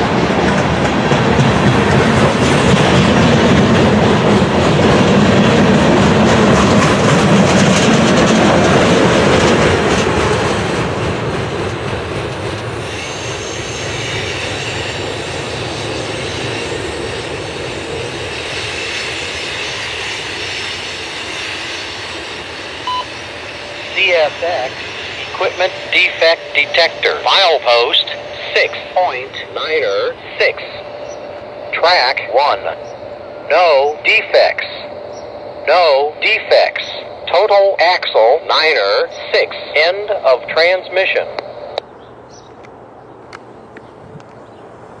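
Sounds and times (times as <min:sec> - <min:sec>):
train wheels clickety-clack: 0:00.0 - 0:22.8
high wheel squeal: 0:12.7 - 0:27.0.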